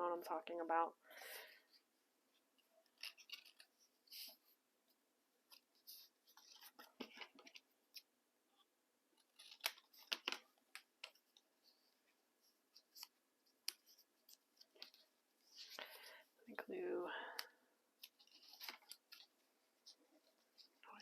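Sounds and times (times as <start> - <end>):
paper rustling: 2.6 - 4.6, 5.5 - 8.1, 9.2 - 16.2, 18.0 - 21.0.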